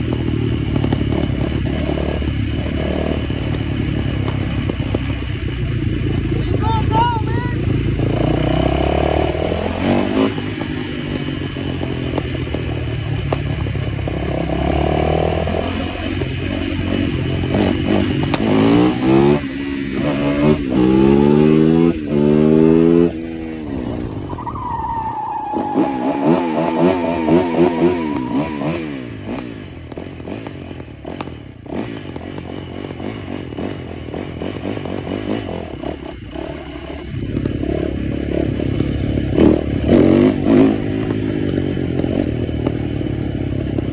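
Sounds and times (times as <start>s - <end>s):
high-pitched engine whine: 0.0s - 30.2s
small motorcycle engines revving: 0.0s - 43.9s.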